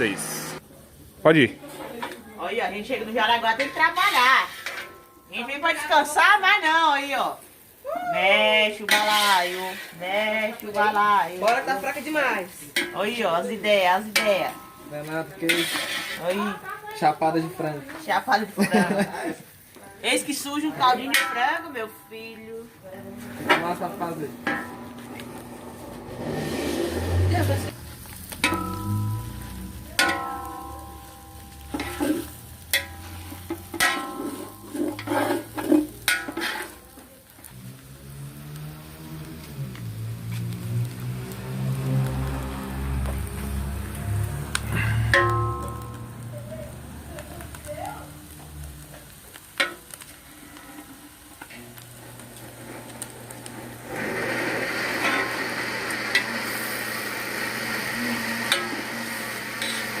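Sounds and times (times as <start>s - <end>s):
chicken sizzling: 0.0s - 60.0s
spoon scraping pot: 8.9s - 10.0s, 15.5s - 16.2s, 31.7s - 36.8s
spoon knocking metal pot: 28.3s - 36.5s.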